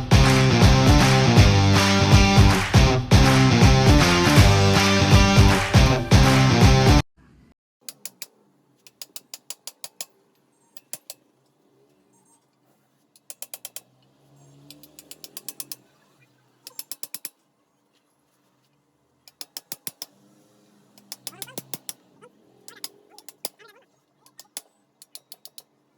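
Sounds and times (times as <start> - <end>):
ratcheting hand tool clicking: 7.8 - 12.0, 13.1 - 17.4, 19.2 - 25.8.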